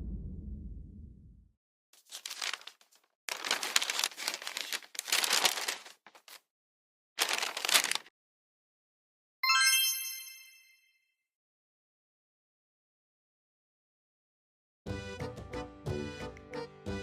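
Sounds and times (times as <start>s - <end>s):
crinkling rustling noise: 2.0s - 6.5s, 7.2s - 8.1s.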